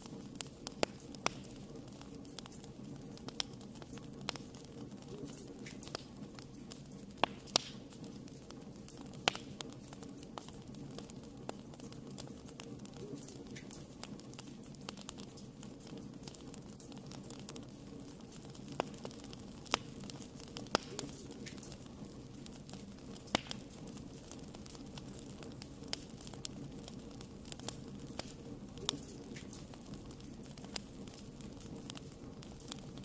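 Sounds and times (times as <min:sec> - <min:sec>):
wood fire burning: 0:00.0 - 0:33.0.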